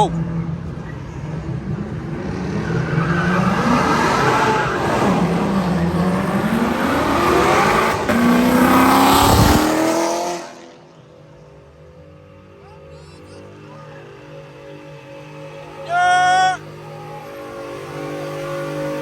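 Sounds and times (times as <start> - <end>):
car engine revving hard: 1.8 - 10.9.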